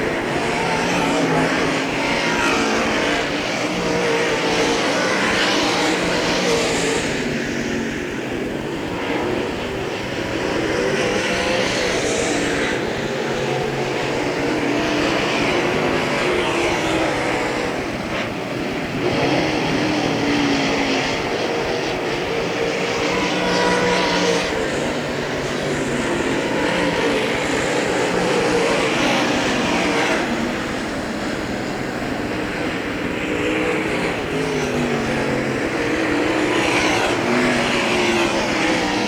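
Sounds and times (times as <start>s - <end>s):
race car engines droning past: 0.0s - 39.0s.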